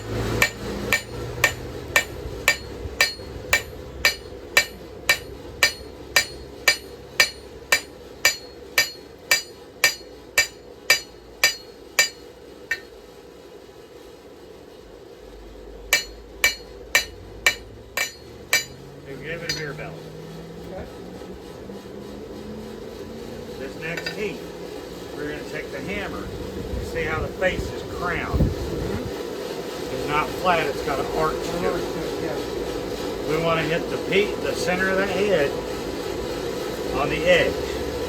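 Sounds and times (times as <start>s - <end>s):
hammer striking steel on anvil: 0.0s - 12.9s, 15.9s - 20.0s, 23.9s - 24.4s.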